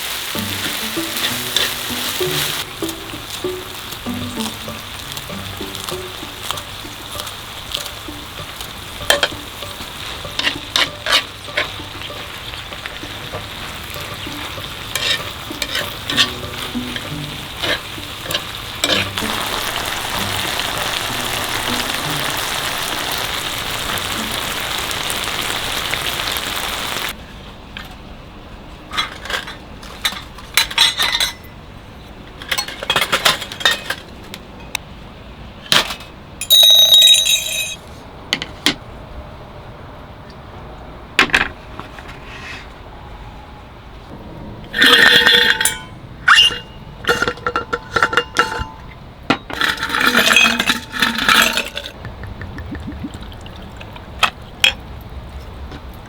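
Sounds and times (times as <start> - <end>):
food sizzling in a pan: 0.0 - 27.2
utensils clicking against pan: 0.4 - 22.3
clinks and knocks: 0.6 - 20.2, 32.3 - 34.8, 35.8 - 38.5, 44.8 - 52.0.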